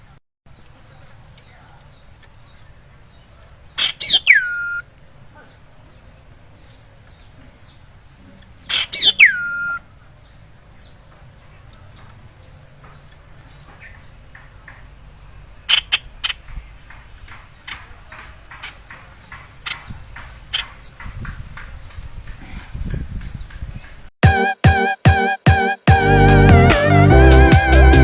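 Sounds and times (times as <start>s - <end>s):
bird harsh call and whistle: 3.7s - 4.8s, 8.6s - 9.8s, 15.7s - 16.5s, 17.3s - 23.9s.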